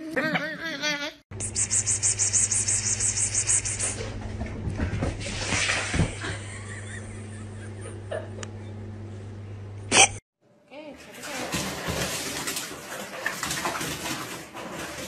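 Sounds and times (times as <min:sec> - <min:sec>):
low hum: 0:01.3 - 0:10.2.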